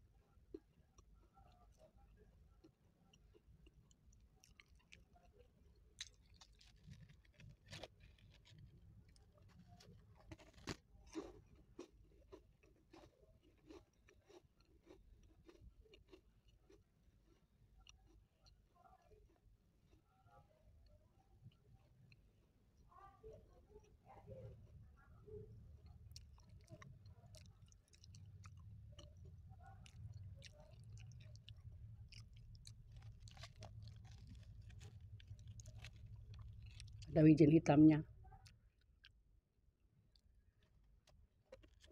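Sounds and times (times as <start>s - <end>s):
biscuit chewing crunches: 0.4s - 20.1s, 25.5s - 37.2s, 40.1s - 41.9s.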